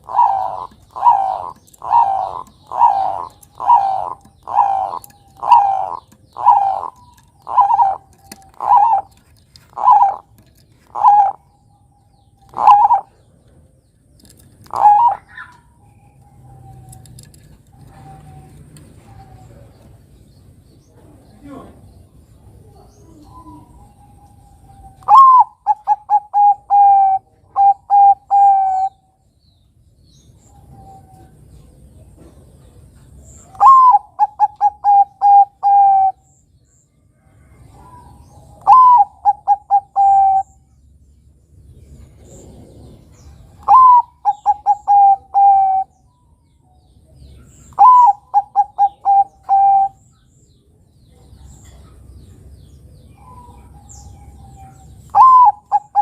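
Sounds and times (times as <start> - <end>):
dove cooing: 0.0 - 13.4, 14.5 - 20.0, 22.6 - 29.1, 33.4 - 36.3, 37.4 - 40.7, 42.0 - 46.0, 47.6 - 50.1, 53.1 - 56.0.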